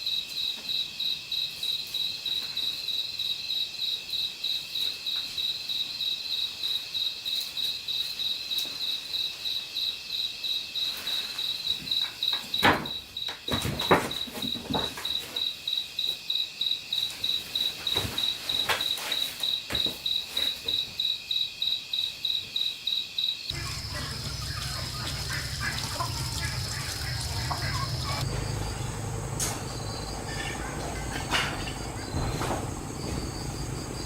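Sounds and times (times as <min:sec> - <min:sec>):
insect chirping: 0:00.0 - 0:34.0
steady low hum: 0:23.5 - 0:34.0.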